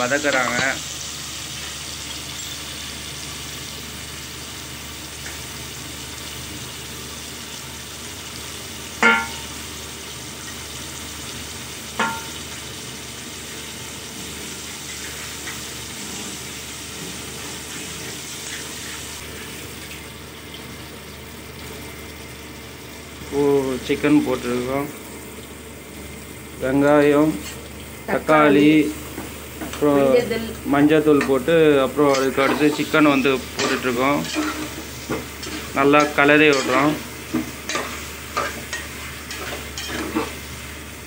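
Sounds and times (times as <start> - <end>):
onion and tomato sizzling in oil: 0.0 - 41.0
metal ladle clinking on cooker: 9.0 - 9.5, 12.0 - 12.4.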